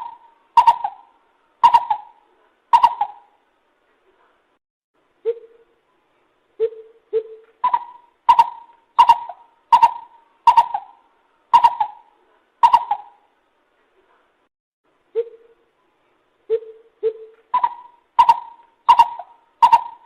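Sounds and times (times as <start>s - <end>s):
bird hooting calls: 0.0s - 3.4s, 6.6s - 13.2s, 16.5s - 20.0s.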